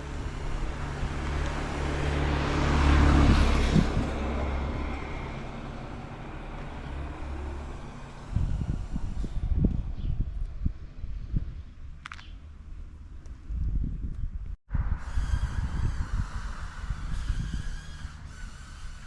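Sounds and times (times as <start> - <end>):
vehicle driving past: 0.0 - 9.6.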